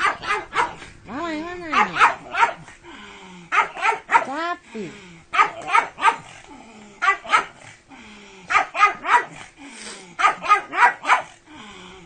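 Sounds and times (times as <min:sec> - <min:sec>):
small dog barking: 0:00.0 - 0:00.8, 0:01.7 - 0:02.7, 0:03.5 - 0:04.4, 0:05.3 - 0:06.4, 0:07.0 - 0:07.6, 0:08.5 - 0:09.4, 0:10.2 - 0:11.4.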